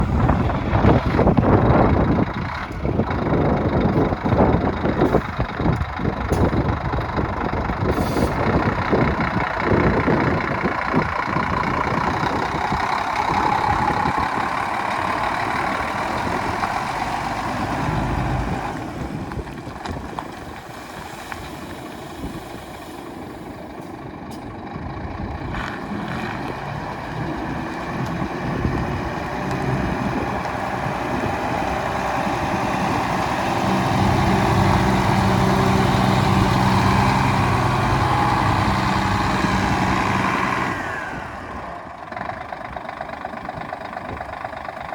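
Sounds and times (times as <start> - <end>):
diesel truck engine running: 0.0 - 44.9.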